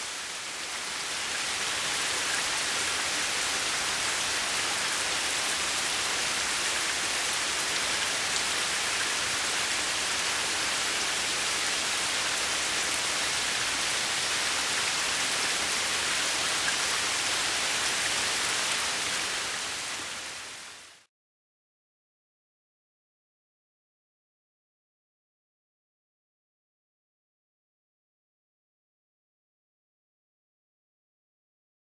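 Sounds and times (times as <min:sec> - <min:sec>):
rain falling on pond: 0:00.0 - 0:21.1.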